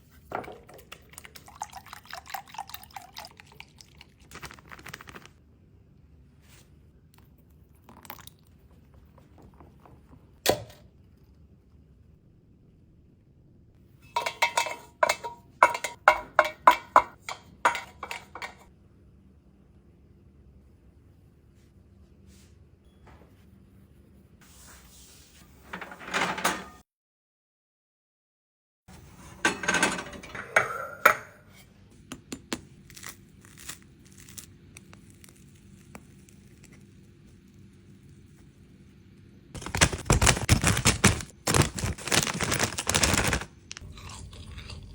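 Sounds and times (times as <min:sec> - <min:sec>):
crinkling and rustling: 0:04.2 - 0:05.4, 0:39.6 - 0:43.9
kitchen utensils knocking cookware: 0:14.1 - 0:18.7, 0:29.5 - 0:31.4.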